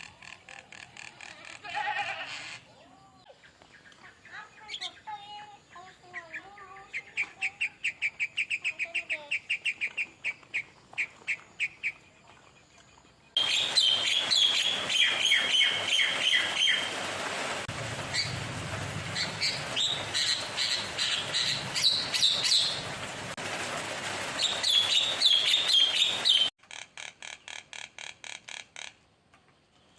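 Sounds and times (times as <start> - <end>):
songbird singing: 2.4 - 16.9, 19.1 - 22.9, 24.4 - 26.5.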